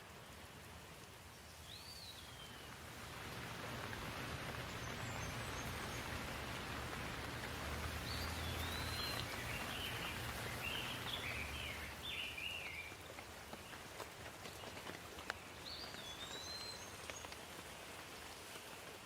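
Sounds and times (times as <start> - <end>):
steady rain falling: 0.0 - 19.0
bird singing warbling phrases: 7.9 - 12.9.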